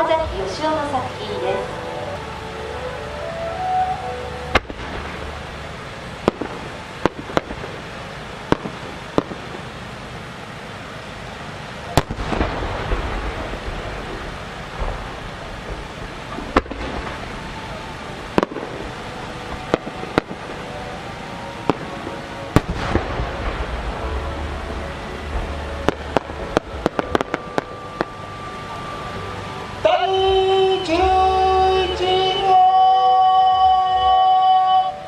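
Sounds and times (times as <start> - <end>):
firework bangs: 4.3 - 35.0
firework shell booming: 4.5 - 9.8, 12.0 - 20.6, 21.7 - 28.2.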